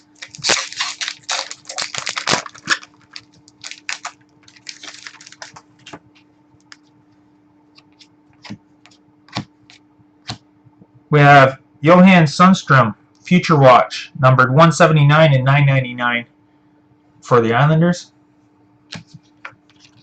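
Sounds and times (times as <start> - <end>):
faint steady hum: 0.0 - 20.0
cards clicking and rustling: 0.2 - 6.0.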